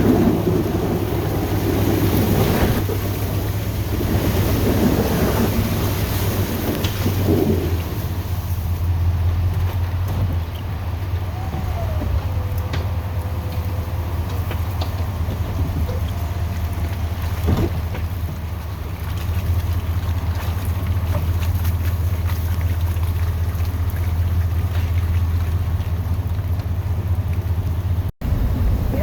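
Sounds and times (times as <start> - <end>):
truck engine low drone: 0.0 - 29.0.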